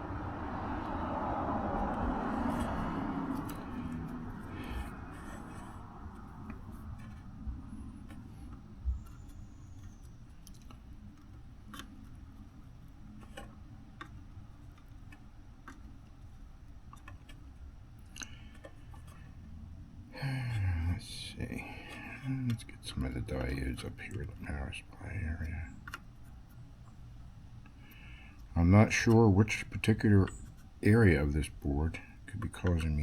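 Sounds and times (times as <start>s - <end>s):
steady low hum: 0.0s - 14.7s, 15.6s - 33.0s.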